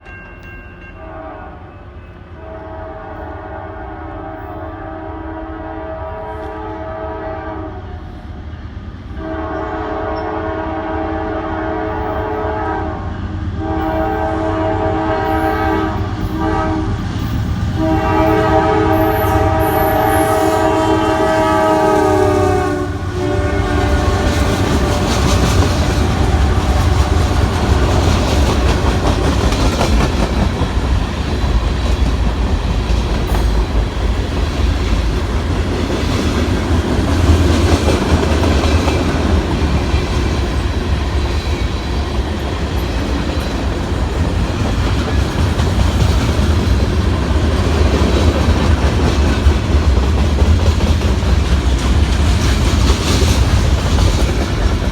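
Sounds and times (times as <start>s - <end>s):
train rumble and wheel clatter: 0.0s - 54.9s
locomotive air horn: 1.0s - 1.8s, 2.4s - 7.9s, 9.2s - 17.0s, 17.7s - 28.2s.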